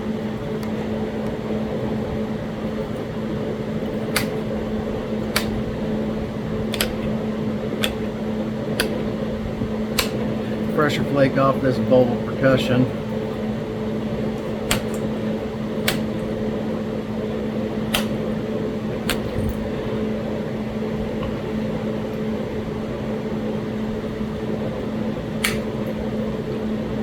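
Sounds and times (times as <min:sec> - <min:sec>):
background hum: 0:00.0 - 0:27.0
stone flakes snapping clicks: 0:04.1 - 0:04.4, 0:05.3 - 0:05.6, 0:06.7 - 0:07.0, 0:10.0 - 0:10.2, 0:14.7 - 0:15.1, 0:15.8 - 0:16.2, 0:17.9 - 0:18.2, 0:19.1 - 0:19.6, 0:25.4 - 0:25.7.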